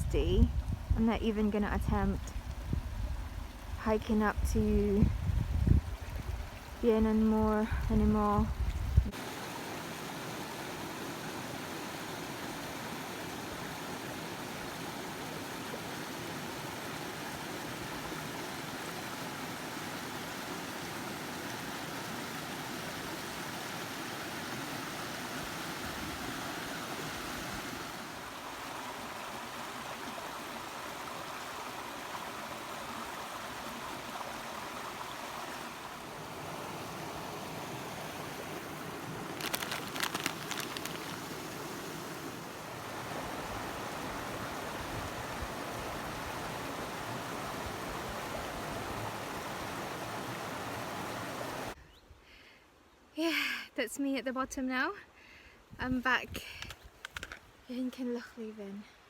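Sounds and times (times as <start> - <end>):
mountain stream rushing: 9.1 - 51.8.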